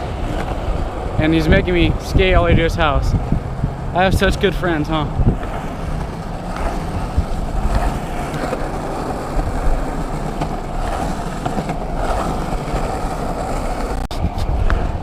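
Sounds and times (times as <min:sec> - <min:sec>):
skateboard wheels rolling on pavement: 0:00.0 - 0:15.0.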